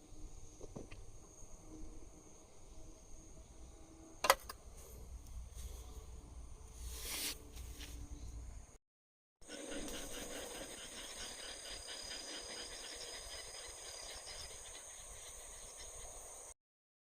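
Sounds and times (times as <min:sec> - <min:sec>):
insects chirping in chorus: 0:09.5 - 0:16.5.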